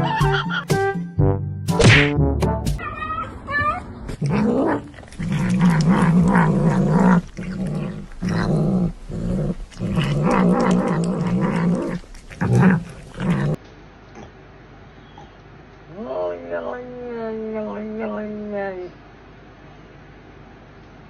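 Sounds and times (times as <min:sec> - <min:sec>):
pet growling: 0:04.1 - 0:13.6.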